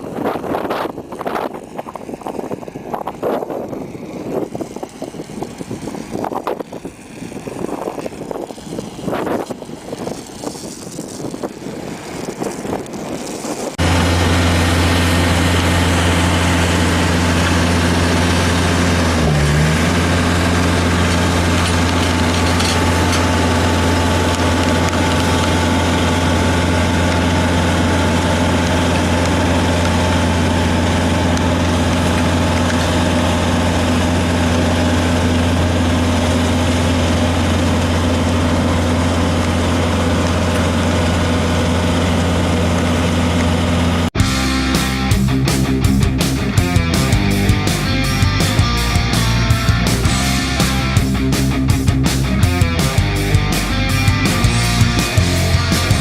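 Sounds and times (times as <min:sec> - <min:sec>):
gusty noise: 0:00.0 - 0:18.6
heavy machine engine humming: 0:00.0 - 0:56.0.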